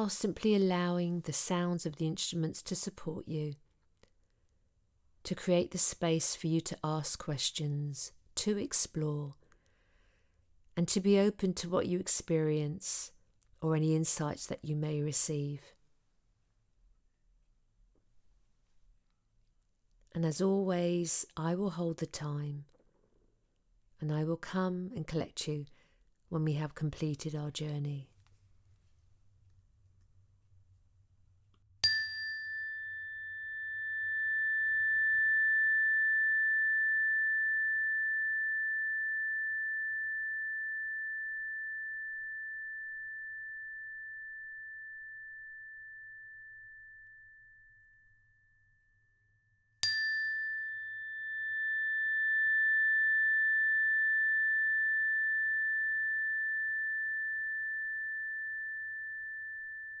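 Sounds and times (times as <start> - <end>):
small high-pitched bell ringing: 31.8 - 60.0.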